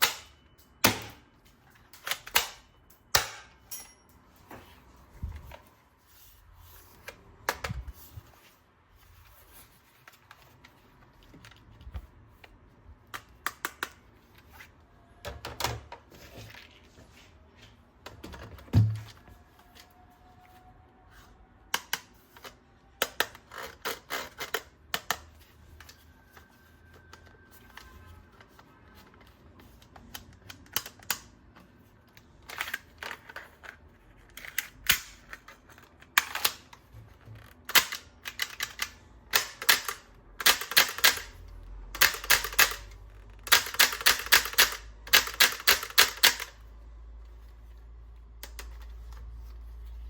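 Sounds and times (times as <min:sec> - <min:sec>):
plastic parts clicking and clacking: 0:11.3 - 0:14.5, 0:21.7 - 0:26.0, 0:29.8 - 0:41.4, 0:42.0 - 0:46.6.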